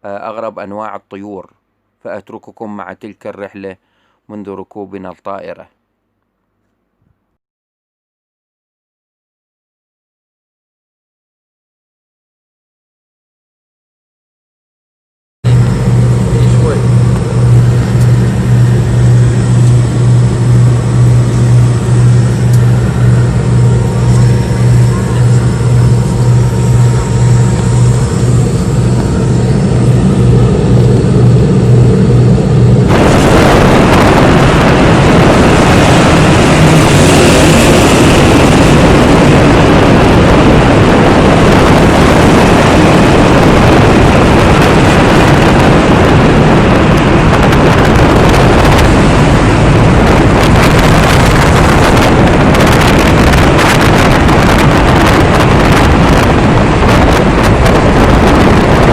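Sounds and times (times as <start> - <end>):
loud steady rushing noise: 15.5 - 58.9
vehicle engine hum: 15.5 - 58.9.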